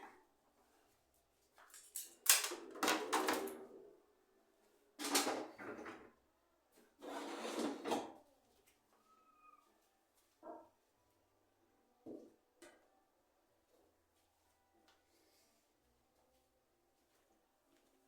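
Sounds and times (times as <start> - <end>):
household objects clattering and scraping: 7.0 - 8.2.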